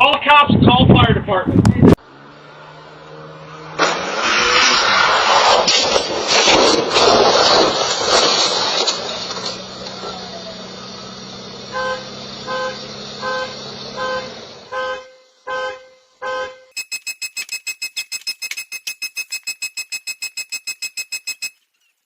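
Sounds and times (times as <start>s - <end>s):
car engine humming: 1.9s - 5.4s, 9.0s - 16.3s
car horn beeps: 11.7s - 21.6s
fast electronic beeping: 16.8s - 21.6s.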